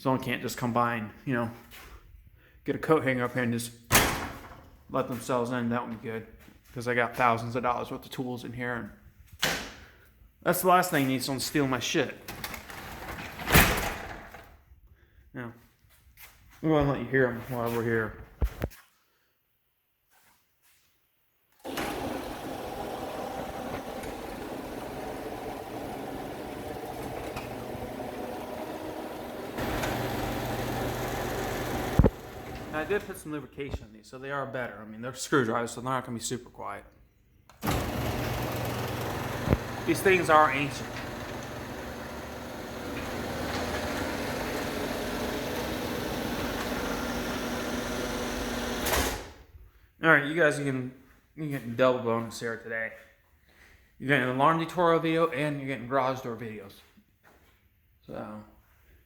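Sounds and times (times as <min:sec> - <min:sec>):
garage door opener droning: 0:21.6 - 0:33.2, 0:37.5 - 0:49.4.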